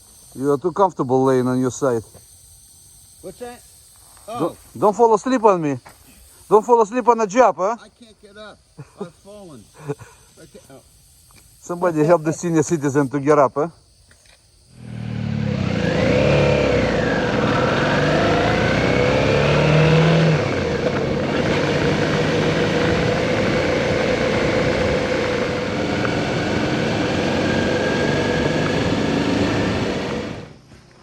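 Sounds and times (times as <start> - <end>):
motorcycle engine running: 14.8 - 30.7
road and wind noise: 14.8 - 31.0.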